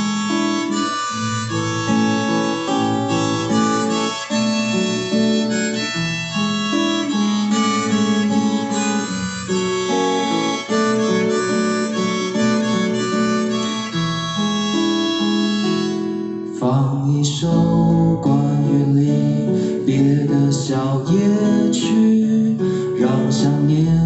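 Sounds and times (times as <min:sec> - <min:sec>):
harmonica playing chords: 0:00.0 - 0:16.6
acoustic guitar: 0:00.0 - 0:24.0.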